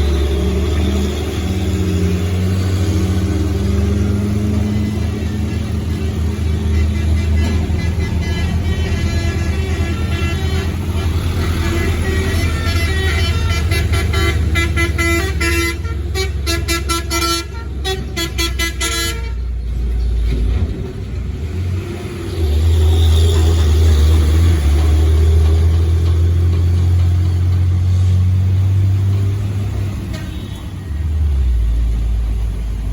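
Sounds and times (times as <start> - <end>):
heavy truck engine rumbling: 0.0 - 32.9
vehicle horn tooting: 6.6 - 19.5.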